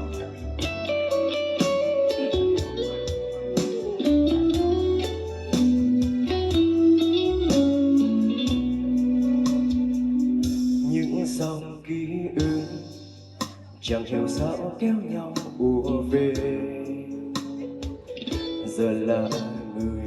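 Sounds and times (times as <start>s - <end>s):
electric guitar lead melody: 0.0s - 11.3s, 16.9s - 19.8s
steady drum beat: 0.0s - 11.6s, 12.4s - 16.7s, 17.4s - 19.9s
bass: 0.0s - 20.0s.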